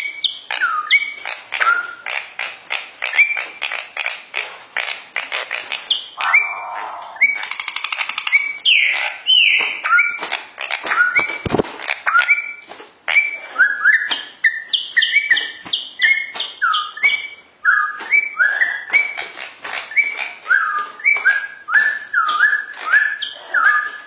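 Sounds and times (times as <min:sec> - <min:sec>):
caged bird whistling calls: 0:05.9 - 0:10.2, 0:12.1 - 0:19.2, 0:19.9 - 0:24.0.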